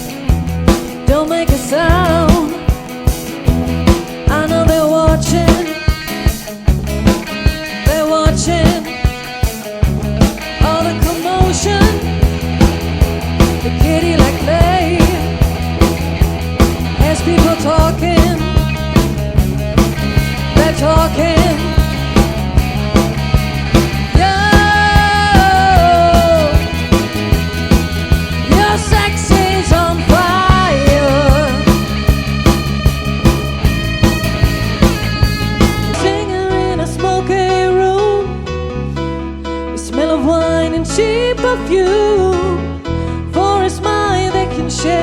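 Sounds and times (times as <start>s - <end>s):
drum kit beat: 0.0s - 36.1s
bass guitar: 0.0s - 45.0s
cover band playing rock song: 0.0s - 45.0s
person singing: 1.0s - 2.9s, 4.3s - 6.0s, 7.7s - 9.1s, 10.5s - 12.1s, 13.6s - 15.4s, 17.0s - 18.9s, 20.4s - 22.3s, 24.1s - 26.9s, 28.4s - 31.9s, 35.9s - 38.4s.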